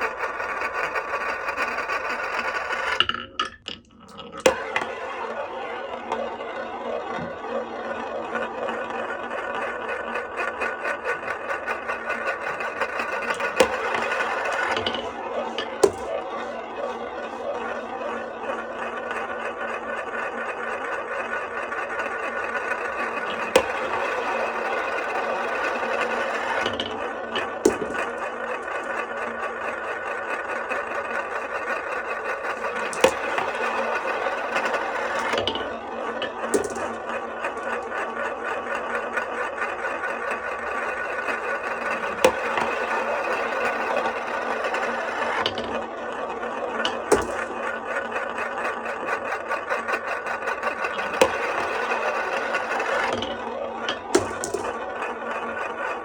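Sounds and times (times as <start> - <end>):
marble clacking on track: 0.0 - 56.0
marbles rattling on wooden track: 0.0 - 56.0.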